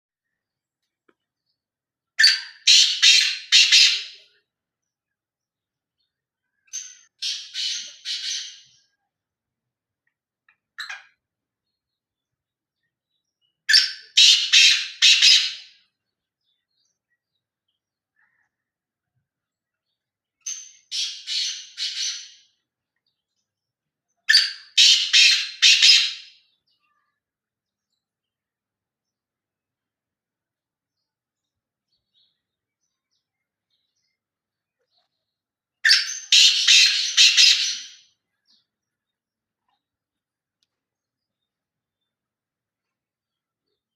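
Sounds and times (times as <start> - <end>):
faint bird chirp: 0.2 - 43.9
partridge calling: 2.2 - 4.4, 13.7 - 15.7, 24.3 - 26.3, 35.8 - 38.0.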